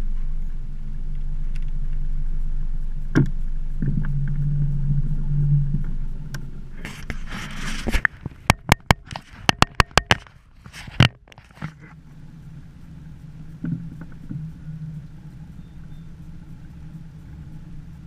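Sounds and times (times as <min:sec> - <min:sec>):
motor humming: 0:00.0 - 0:08.5
sharp knocks: 0:08.0 - 0:10.3.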